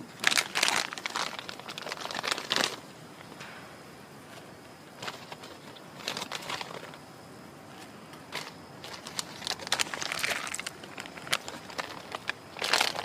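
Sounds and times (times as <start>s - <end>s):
crinkling and crackling handling: 0.0s - 3.6s, 4.3s - 7.0s, 7.6s - 13.0s.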